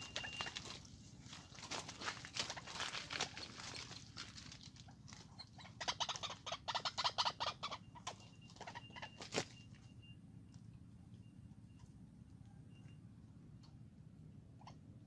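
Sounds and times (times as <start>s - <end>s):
bird harsh clucking calls: 5.2s - 9.6s.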